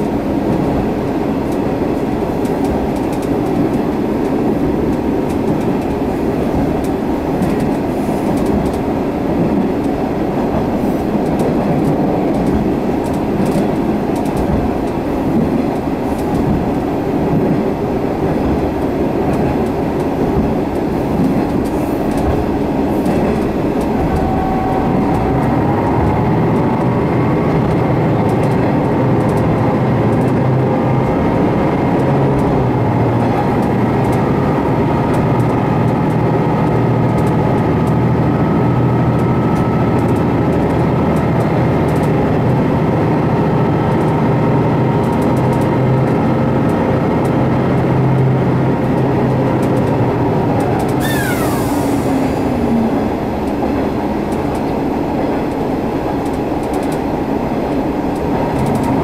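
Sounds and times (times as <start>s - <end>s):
train wheels on rails and engine: 0.0s - 59.0s
faint clicks over rail joints: 1.5s - 17.6s, 18.2s - 25.4s, 27.6s - 30.6s, 39.2s - 42.6s, 44.9s - 51.6s, 52.5s - 59.0s.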